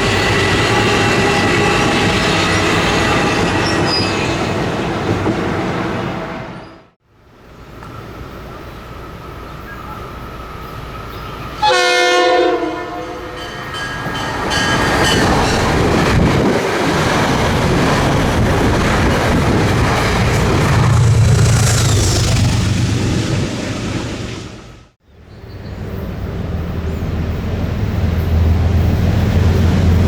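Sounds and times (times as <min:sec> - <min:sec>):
train rumble: 0:00.0 - 0:06.7, 0:07.4 - 0:30.0
train horn blast: 0:11.6 - 0:13.4
wheel and rail noise: 0:12.6 - 0:30.0.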